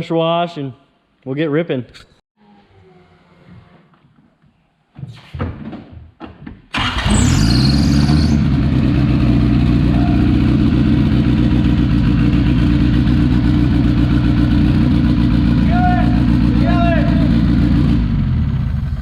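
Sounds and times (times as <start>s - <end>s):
car engine cranking: 6.7s - 19.0s
car engine idling: 6.8s - 19.0s
high squeal falling in pitch: 7.1s - 8.4s.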